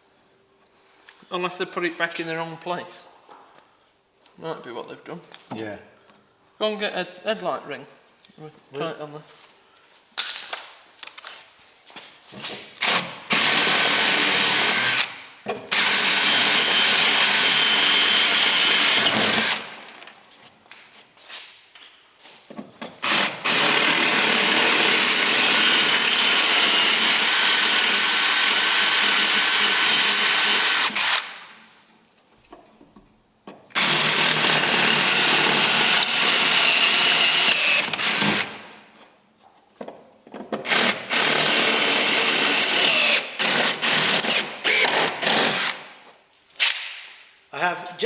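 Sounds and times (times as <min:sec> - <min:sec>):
power drill whining: 0:12.8 - 0:20.0, 0:23.0 - 0:31.4, 0:33.7 - 0:38.6, 0:40.6 - 0:45.9.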